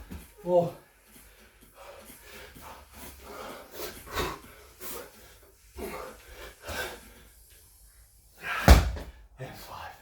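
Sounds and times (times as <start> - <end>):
man breathing hard: 1.1 - 7.5.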